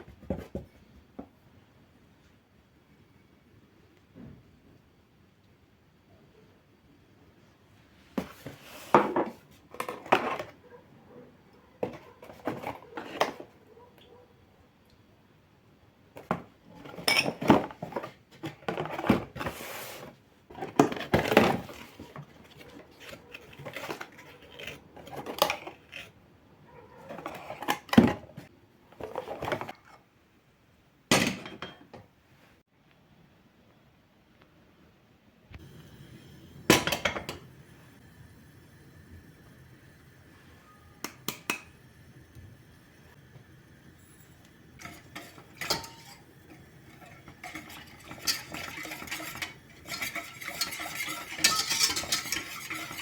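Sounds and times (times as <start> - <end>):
dishes and pots clinking: 16.2 - 19.5, 31.1 - 32.0, 36.7 - 37.5, 44.0 - 53.0.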